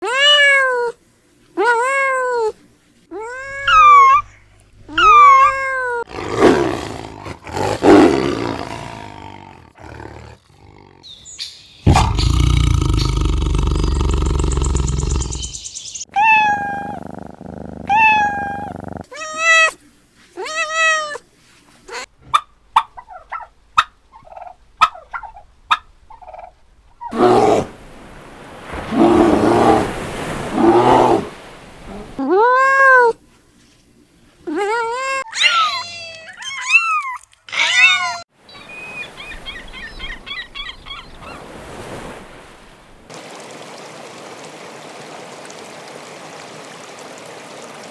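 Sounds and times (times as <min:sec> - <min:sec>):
cat meows: 0:00.0 - 0:01.0, 0:04.9 - 0:06.0, 0:16.1 - 0:17.0, 0:17.9 - 0:19.8, 0:20.4 - 0:21.2, 0:32.2 - 0:33.2, 0:34.5 - 0:38.2
deep animal roar: 0:06.1 - 0:11.1, 0:11.9 - 0:15.6, 0:16.8 - 0:18.0, 0:27.1 - 0:27.7, 0:28.8 - 0:31.4
rough noisy animal calls: 0:11.8 - 0:15.6, 0:28.7 - 0:32.2.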